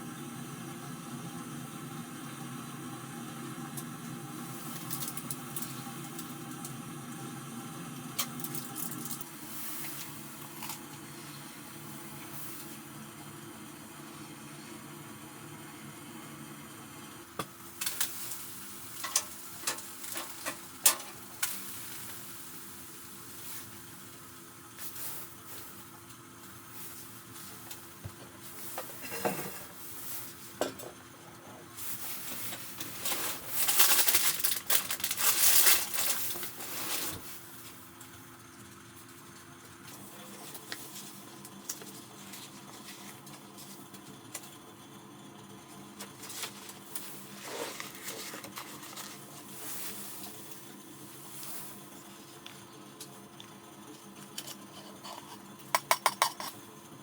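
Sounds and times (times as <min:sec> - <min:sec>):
utensils tapping cookware: 0:54.8 - 0:56.6.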